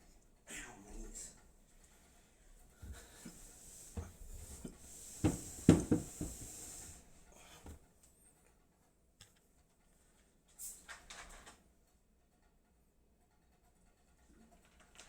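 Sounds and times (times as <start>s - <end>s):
knocks and clatter of objects: 2.8s - 6.6s
hiss from handling objects: 2.8s - 7.8s.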